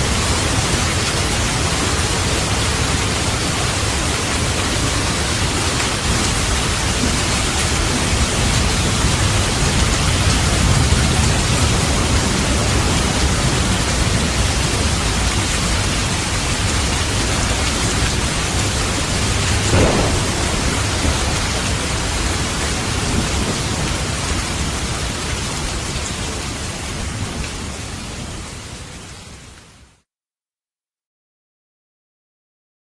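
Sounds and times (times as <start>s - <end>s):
heavy rain: 0.0s - 30.0s
thunder clap: 16.6s - 25.2s
low rumbling thunder: 16.6s - 25.3s.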